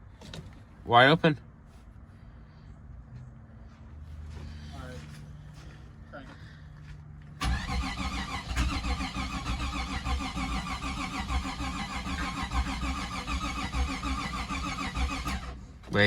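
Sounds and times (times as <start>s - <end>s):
car starter cranking engine: 7.4s - 15.6s.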